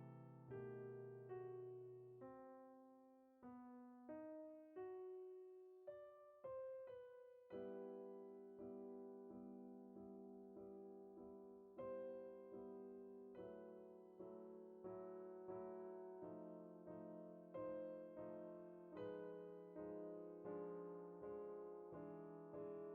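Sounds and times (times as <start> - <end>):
soft piano music: 0.0 - 22.9.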